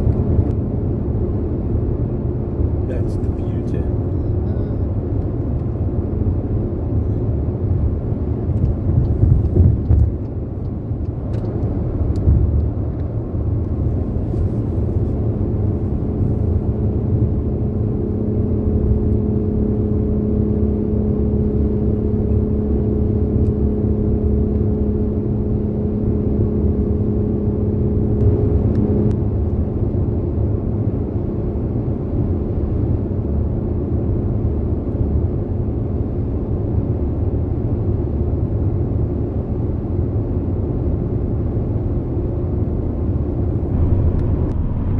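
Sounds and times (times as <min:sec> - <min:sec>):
tyres and engine rumble: 0:00.0 - 0:20.1, 0:43.2 - 0:44.9
steady hum: 0:43.5 - 0:44.9.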